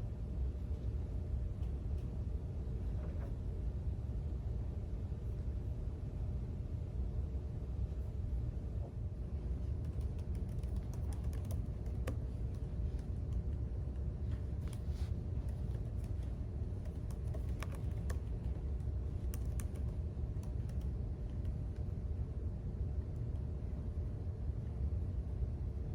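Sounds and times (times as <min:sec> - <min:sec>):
low background rumble: 0:00.0 - 0:25.9.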